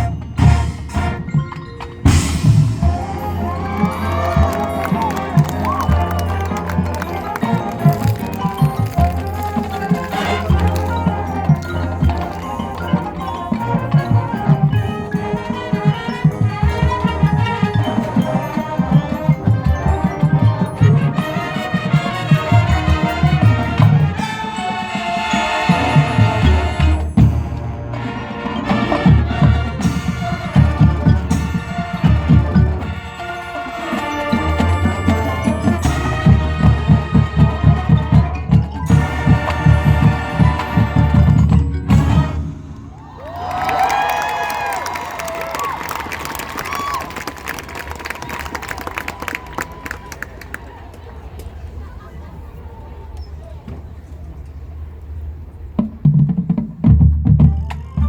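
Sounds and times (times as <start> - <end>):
brass holding chords: 0.0 - 43.0
marching band playing: 0.0 - 50.6, 54.9 - 58.0.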